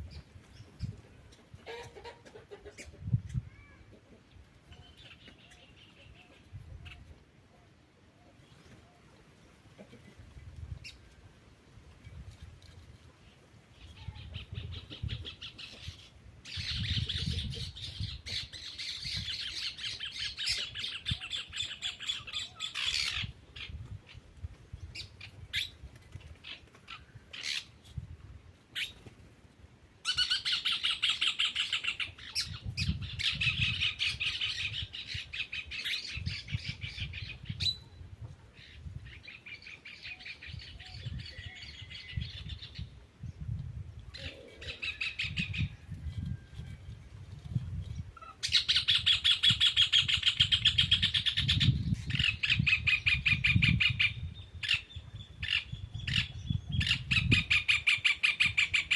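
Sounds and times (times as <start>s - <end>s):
birds chattering in trills: 13.8s - 24.2s, 48.1s - 58.9s.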